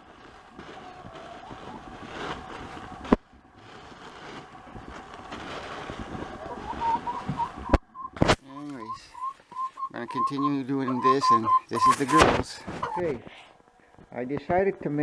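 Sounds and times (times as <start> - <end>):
rustling and crackling of bedding: 0.0 - 8.6
hens calling faintly: 0.6 - 3.0, 6.3 - 13.8.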